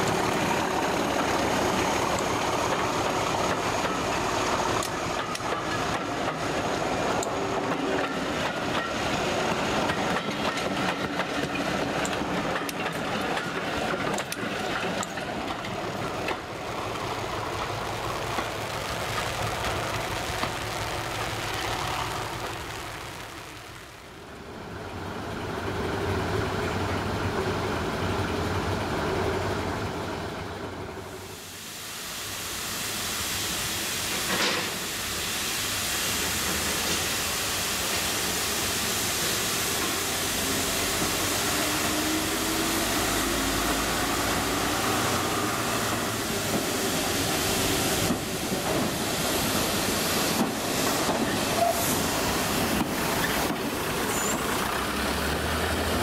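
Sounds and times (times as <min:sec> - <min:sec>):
train wheels clicking over rail joints: 0:00.0 - 0:20.5, 0:34.1 - 0:34.9, 0:40.8 - 0:55.4.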